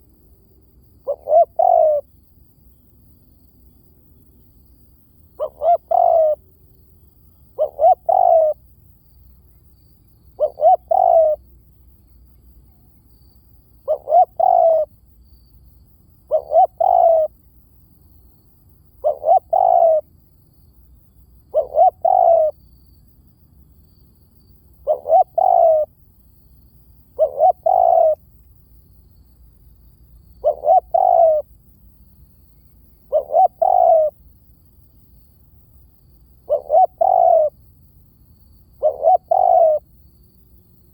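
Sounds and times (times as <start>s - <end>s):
dove cooing: 1.0s - 2.1s, 5.4s - 6.4s, 7.6s - 8.6s, 10.3s - 11.4s, 13.8s - 14.9s, 16.3s - 17.4s, 19.0s - 20.1s, 21.5s - 22.6s, 24.8s - 25.9s, 27.2s - 28.2s, 30.3s - 31.5s, 32.9s - 34.2s, 36.4s - 37.6s, 38.8s - 39.8s.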